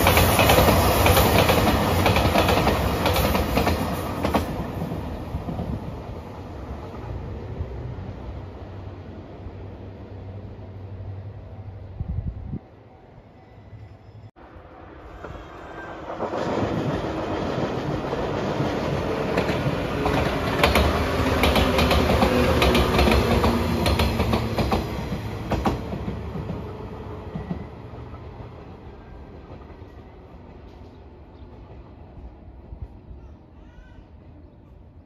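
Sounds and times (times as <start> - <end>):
train rolling past: 0.0 - 35.0
wheels clacking over rail joints: 16.1 - 27.7.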